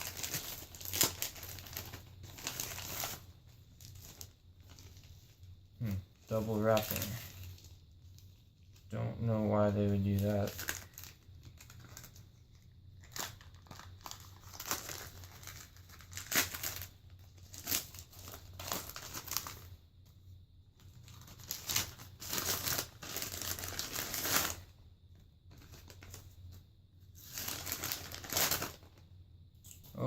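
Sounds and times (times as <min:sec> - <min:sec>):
packaging tearing and crinkling: 0:00.0 - 0:05.1, 0:05.8 - 0:08.8, 0:09.6 - 0:19.7, 0:20.9 - 0:24.7, 0:27.2 - 0:29.0.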